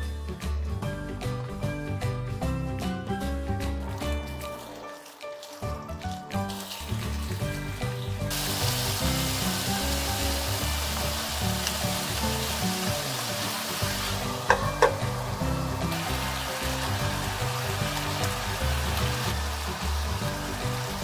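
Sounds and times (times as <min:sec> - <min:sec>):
background music: 0:00.0 - 0:21.0
chicken sizzling in frying pan: 0:03.9 - 0:21.0
metal lid clinking on pan: 0:14.5 - 0:15.0.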